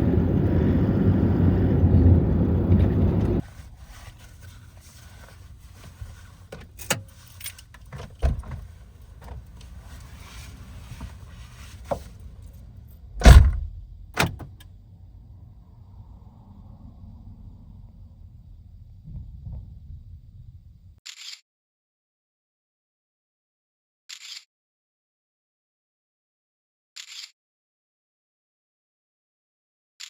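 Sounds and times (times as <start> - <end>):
low vehicle rumble: 0.0 - 21.0
heavy thump: 13.2 - 14.5.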